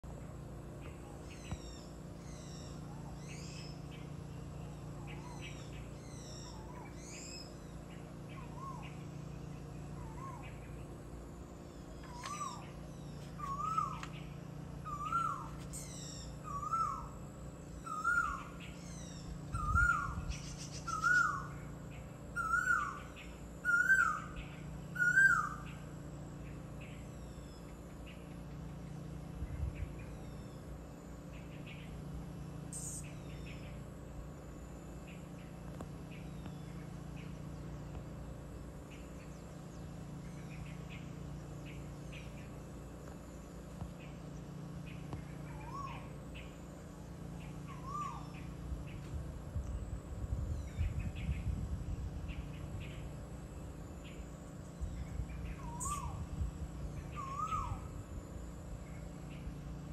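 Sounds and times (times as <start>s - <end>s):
low hum: 0.0s - 59.9s
small birds chirping: 0.0s - 59.9s
bird whistled call: 13.4s - 14.2s, 14.8s - 17.1s, 17.8s - 21.5s, 22.4s - 25.8s, 47.7s - 48.5s, 55.5s - 56.2s, 57.1s - 57.9s.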